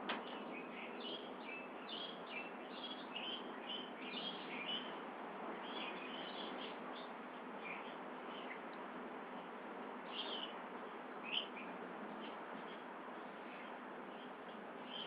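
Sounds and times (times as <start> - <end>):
birds chirping and whistling: 0.2 - 4.9, 10.1 - 10.5.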